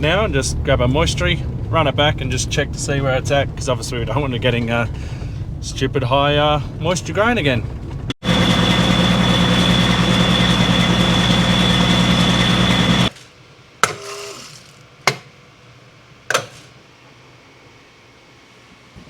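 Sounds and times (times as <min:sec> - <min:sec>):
vehicle engine running: 0:07.7 - 0:13.1
high whine: 0:08.2 - 0:13.1.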